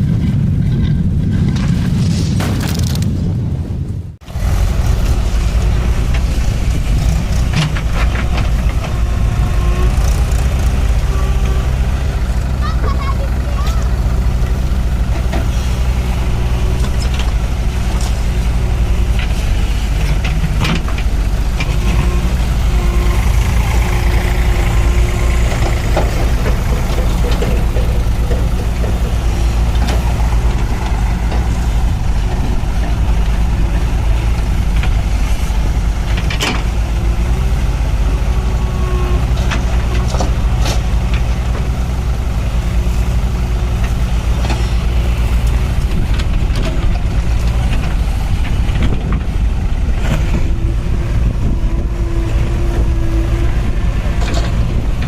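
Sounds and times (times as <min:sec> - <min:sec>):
tractor diesel engine running: 0:04.2 - 0:55.0.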